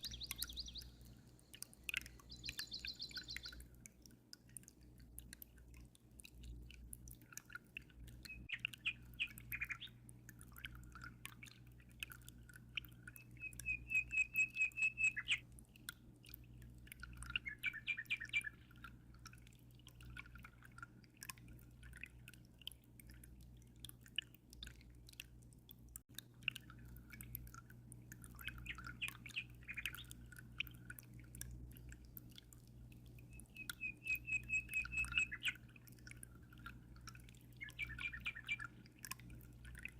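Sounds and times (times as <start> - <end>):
songbird singing trills: 0.0 - 3.7, 8.2 - 10.0, 13.1 - 15.4, 17.2 - 18.7, 28.4 - 30.2, 33.2 - 35.7, 37.6 - 38.8
low steady hum: 0.0 - 39.9
water dripping and trickling: 0.0 - 39.9.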